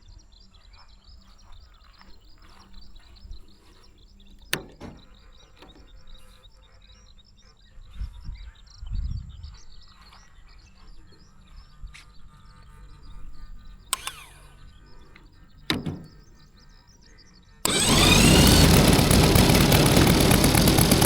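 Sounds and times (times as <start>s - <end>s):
sharp click: 14.0s - 14.3s, 17.7s - 21.0s.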